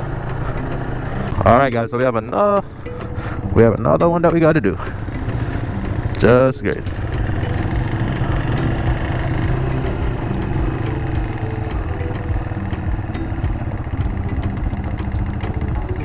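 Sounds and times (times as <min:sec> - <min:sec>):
motorcycle engine at low revs: 0:00.0 - 0:01.6, 0:04.8 - 0:16.0.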